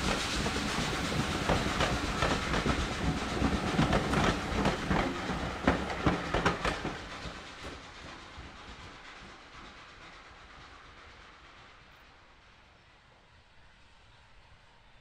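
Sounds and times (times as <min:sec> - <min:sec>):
train running noise: 0:00.0 - 0:15.0
wheels clacking over rail joints: 0:00.3 - 0:07.4.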